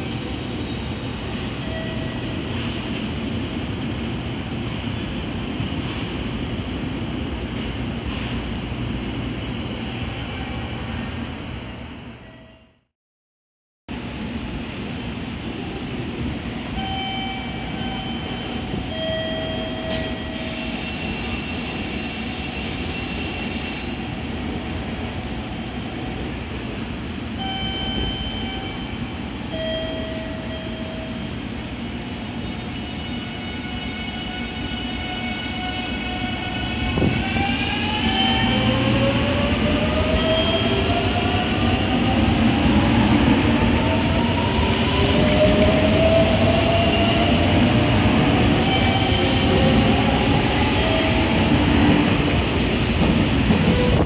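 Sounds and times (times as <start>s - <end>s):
electric train hum: 13.9s - 54.0s
train running noise: 13.9s - 54.0s.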